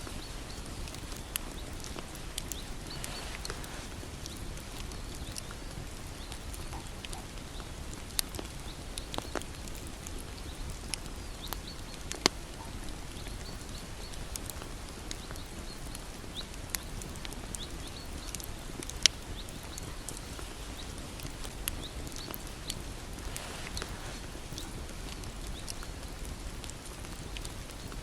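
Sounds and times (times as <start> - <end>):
bonfire burning: 0.0 - 28.0
fire crackles and pops: 0.0 - 28.0.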